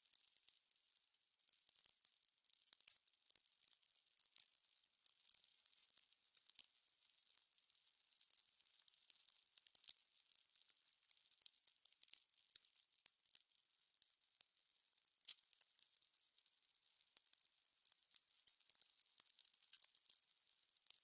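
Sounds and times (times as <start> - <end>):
wood fire crackling: 1.5 - 1.9, 4.3 - 8.9.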